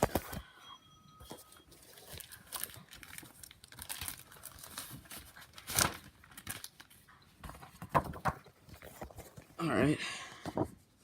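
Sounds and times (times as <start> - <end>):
paper pages rustling: 0.0 - 0.4, 1.3 - 9.6.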